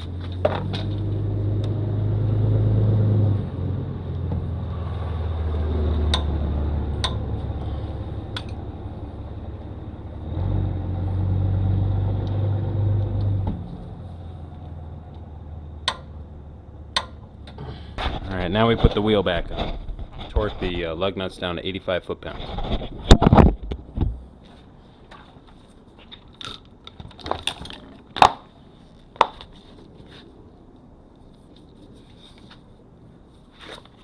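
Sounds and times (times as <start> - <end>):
low mechanical rumble: 0.0 - 21.7, 22.4 - 25.9.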